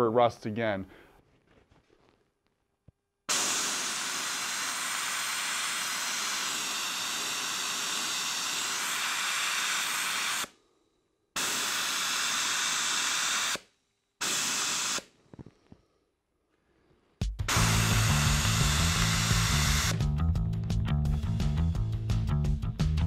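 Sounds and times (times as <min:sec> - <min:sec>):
air blaster hissing: 0:03.3 - 0:10.6, 0:11.4 - 0:15.1, 0:17.5 - 0:20.0.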